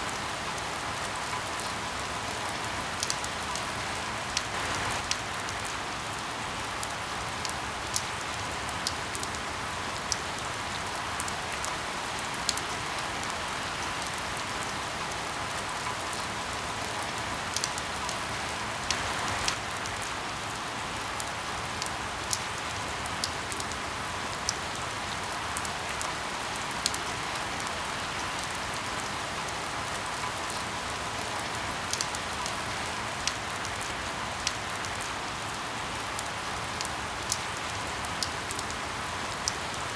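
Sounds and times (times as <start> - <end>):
steady rain hiss: 0.0 - 39.9
firewood crackling: 4.4 - 5.5.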